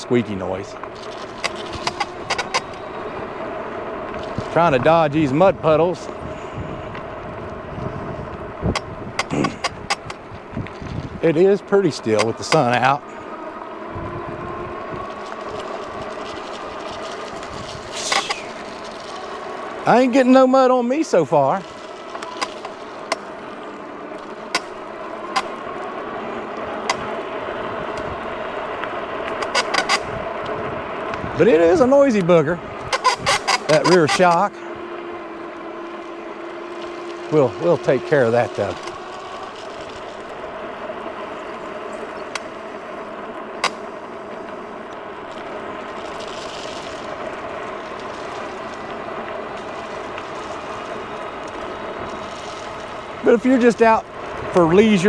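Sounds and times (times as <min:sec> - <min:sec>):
suspension clunks: 0:00.0 - 0:20.2, 0:32.3 - 0:45.5
electric bike motor and tyres hum: 0:00.0 - 0:55.0
sharp clicks: 0:00.7 - 0:03.2, 0:17.4 - 0:19.3.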